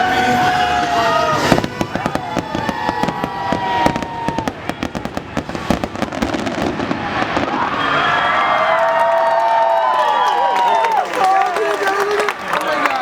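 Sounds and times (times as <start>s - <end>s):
fireworks bangs and crackles: 0.0s - 8.2s.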